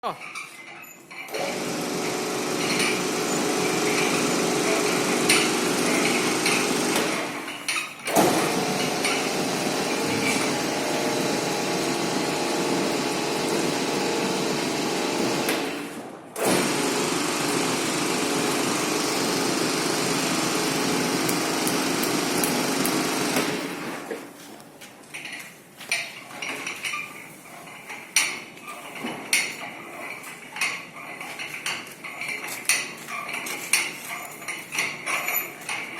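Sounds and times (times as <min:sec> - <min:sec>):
sack loading conveyor running: 0:01.3 - 0:07.5, 0:08.1 - 0:24.1.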